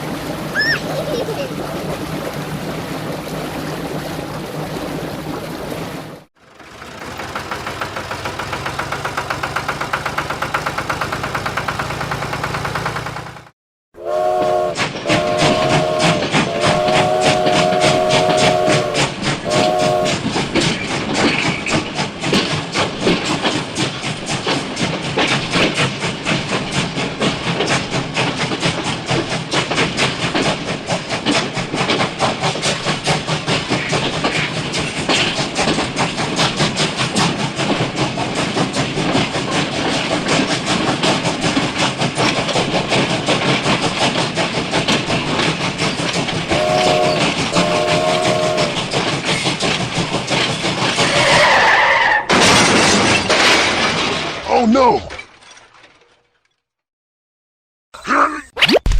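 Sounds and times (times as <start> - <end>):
small engine chugging: 6.4 - 13.5, 30.8 - 51.5
horn toots: 14.0 - 20.2, 46.4 - 48.9.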